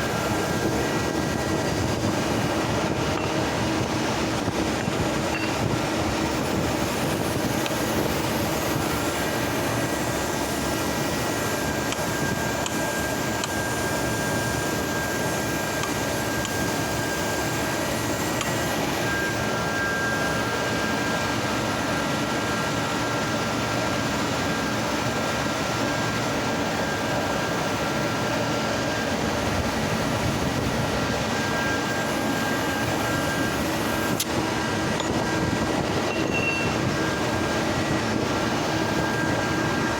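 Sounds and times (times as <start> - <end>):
grinding machine running: 0.0 - 39.9
thin high whining tones: 31.2 - 39.9.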